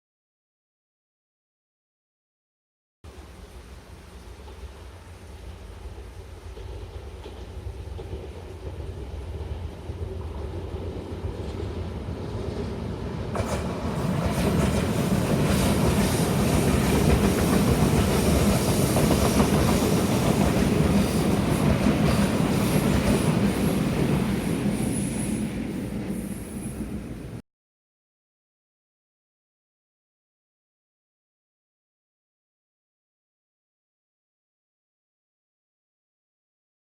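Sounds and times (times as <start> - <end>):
train passing: 3.1 - 27.4
wheels clattering on rails: 5.5 - 11.7, 13.4 - 25.0.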